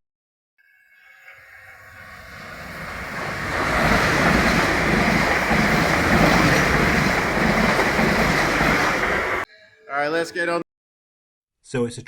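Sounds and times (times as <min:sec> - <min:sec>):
passenger train rumbling: 0:01.4 - 0:09.4.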